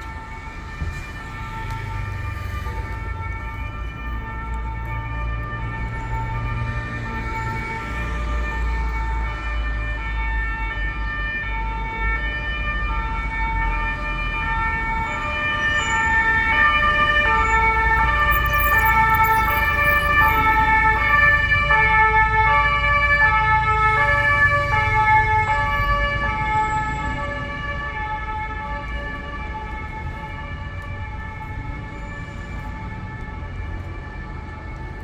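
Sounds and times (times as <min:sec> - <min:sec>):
traffic noise: 0:00.0 - 0:35.0
two-tone siren: 0:00.0 - 0:35.0.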